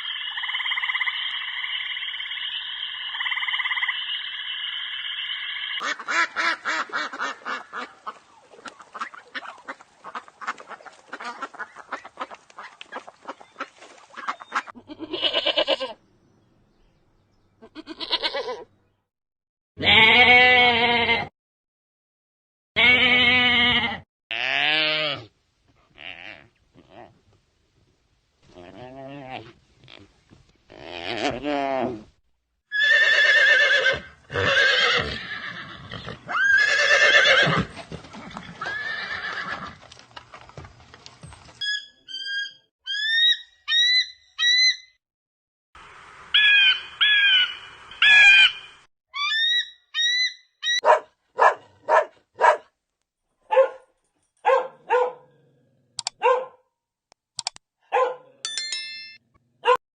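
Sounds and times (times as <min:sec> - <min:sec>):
high-pitched animal squealing: 0:41.6 - 0:44.8, 0:46.4 - 0:50.8.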